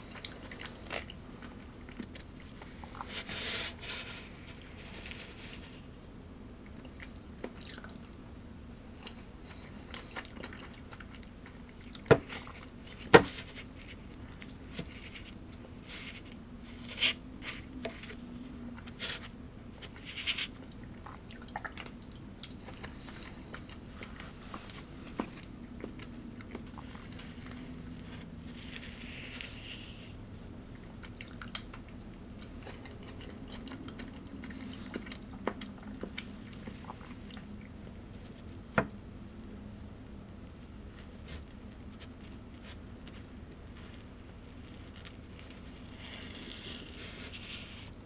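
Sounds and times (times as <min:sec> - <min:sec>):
faint steady hum: 0:00.0 - 0:48.0
person chewing and crunching food: 0:06.7 - 0:08.2, 0:08.8 - 0:38.5.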